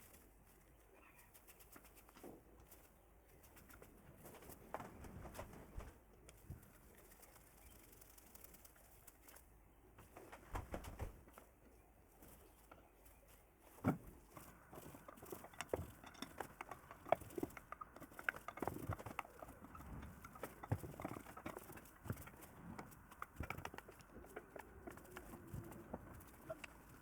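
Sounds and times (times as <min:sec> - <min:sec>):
light clicks and knocks: 0:13.7 - 0:27.0.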